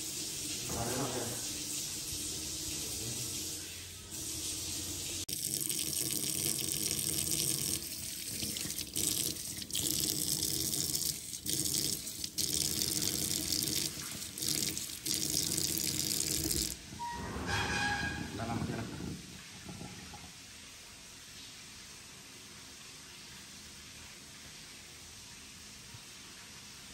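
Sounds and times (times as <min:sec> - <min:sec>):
hands washed under water: 0:05.2 - 0:16.8.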